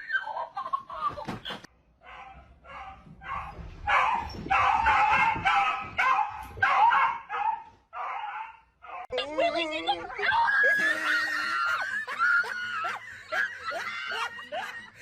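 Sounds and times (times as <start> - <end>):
dog barking: 2.0 - 9.1.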